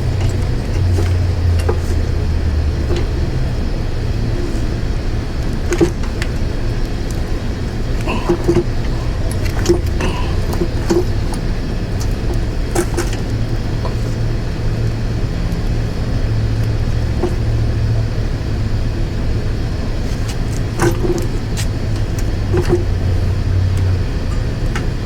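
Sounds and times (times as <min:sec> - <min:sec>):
light clicks and knocks of parts: 0:00.0 - 0:03.6, 0:04.4 - 0:14.3, 0:16.6 - 0:17.8, 0:20.0 - 0:25.0
steady low hum: 0:00.0 - 0:25.0.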